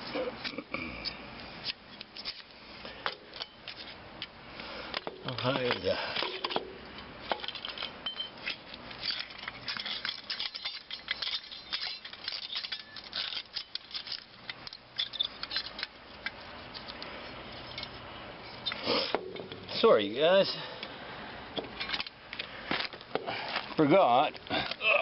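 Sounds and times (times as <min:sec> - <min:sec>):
small metal pieces clinking: 0:07.3 - 0:17.0.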